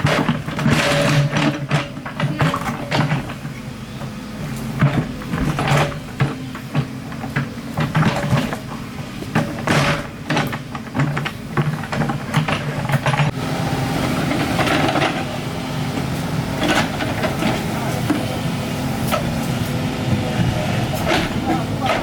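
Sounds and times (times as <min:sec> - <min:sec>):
metal clanking against rock: 0:00.0 - 0:03.5, 0:07.8 - 0:13.3
excavator engine running: 0:00.0 - 0:22.0.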